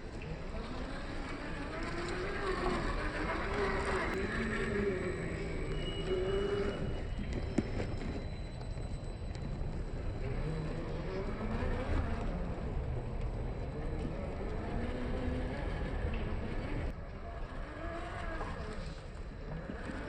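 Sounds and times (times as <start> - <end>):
rc car motor whining: 0.0 - 20.0.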